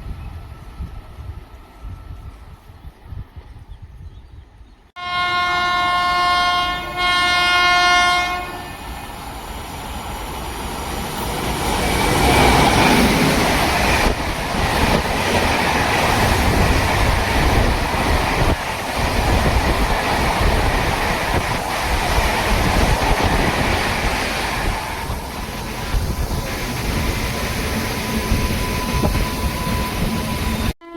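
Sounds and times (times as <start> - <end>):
locomotive horn blasts: 5.0 - 8.8
train wheels rumbling on rails: 6.8 - 30.8.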